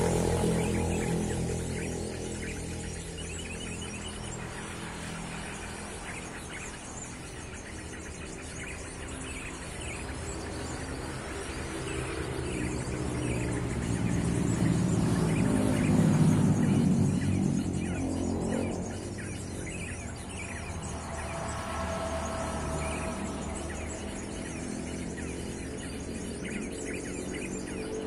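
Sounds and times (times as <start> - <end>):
vehicle engine: 0.0 - 5.9, 11.5 - 27.8
road traffic hum: 0.0 - 28.0
small birds chirping: 0.0 - 28.0.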